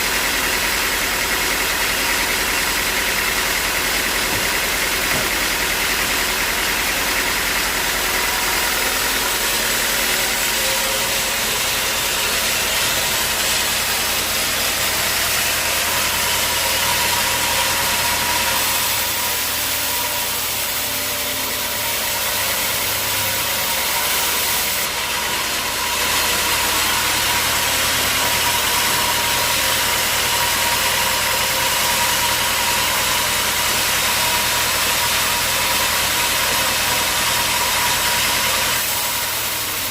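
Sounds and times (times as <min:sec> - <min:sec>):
motor humming: 0:00.0 - 0:21.8
sawing hiss: 0:03.0 - 0:39.9.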